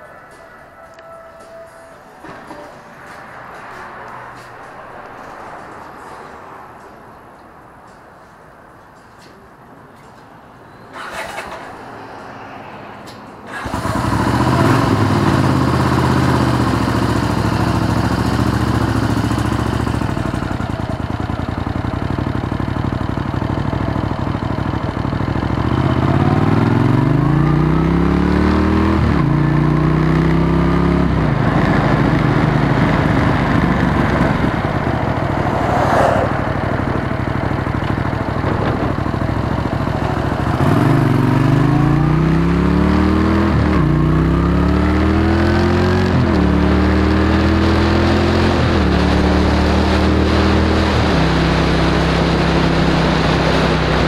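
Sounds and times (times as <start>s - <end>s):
motorcycle engine revving: 13.5s - 54.0s.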